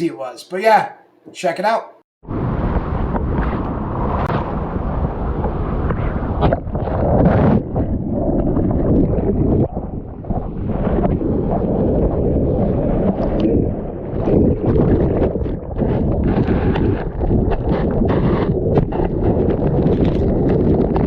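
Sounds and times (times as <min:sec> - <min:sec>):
strong wind buffeting microphone: 0:02.2 - 0:21.0.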